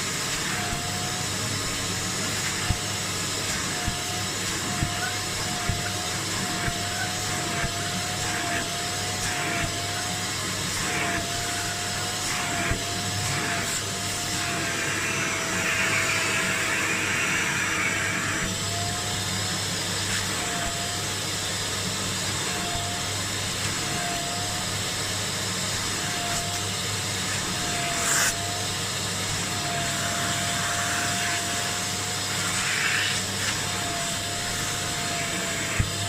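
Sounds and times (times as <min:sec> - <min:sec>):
nozzle hissing on upholstery: 0:00.0 - 0:36.0
suction motor whining: 0:00.0 - 0:36.0.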